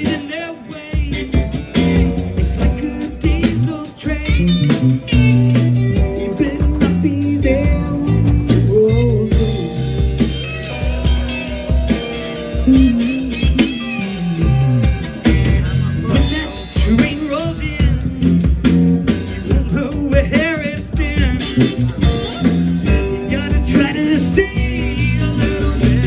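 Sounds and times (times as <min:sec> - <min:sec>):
rock band playing blues-rock: 0:00.0 - 0:26.0.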